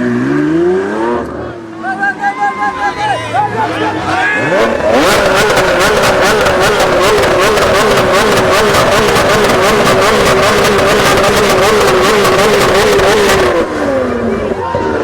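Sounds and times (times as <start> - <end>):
sports car engine bouncing off rev limiter: 4.4 - 14.2.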